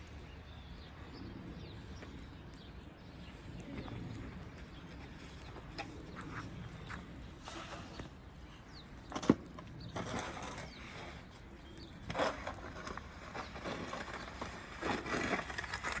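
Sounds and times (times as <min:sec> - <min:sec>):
snow shovel scraping snow and ice: 0:10.0 - 0:11.3, 0:12.0 - 0:16.0.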